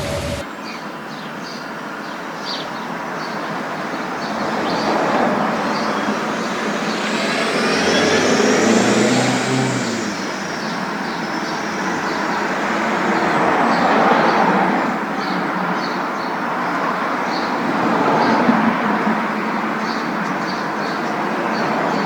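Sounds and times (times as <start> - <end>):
car road noise rumbling: 0.0 - 0.4, 4.4 - 13.6
rising and falling whine: 0.0 - 0.4, 4.4 - 12.7.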